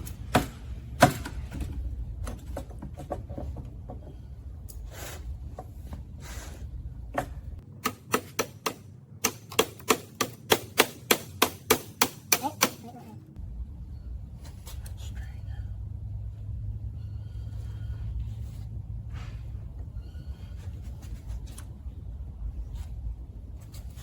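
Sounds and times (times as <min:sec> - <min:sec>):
low rumble: 0:13.3 - 0:24.0.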